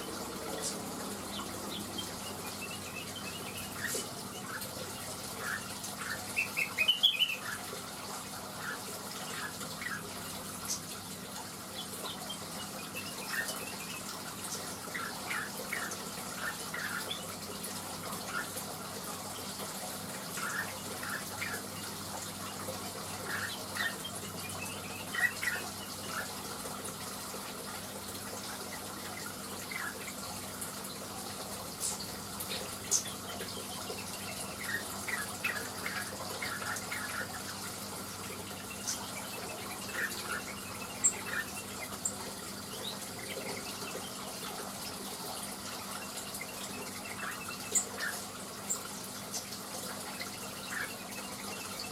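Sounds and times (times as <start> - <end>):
bird chirping: 38.4 - 44.5.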